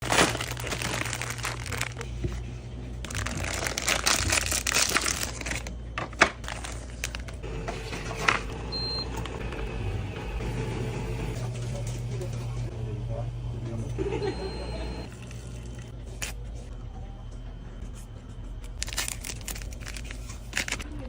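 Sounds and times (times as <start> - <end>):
packaging crinkling and rustling: 0.0 - 7.4, 18.8 - 20.8.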